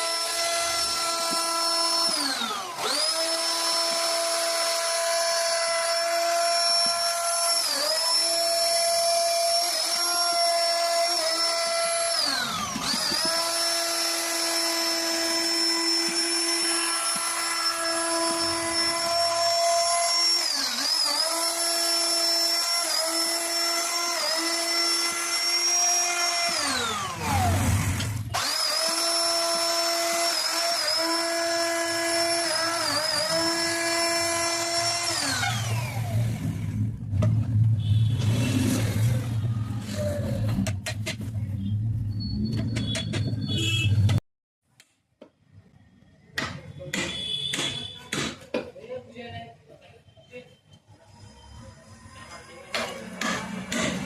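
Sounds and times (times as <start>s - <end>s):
wood router whining and cutting wood: 0.0s - 37.3s.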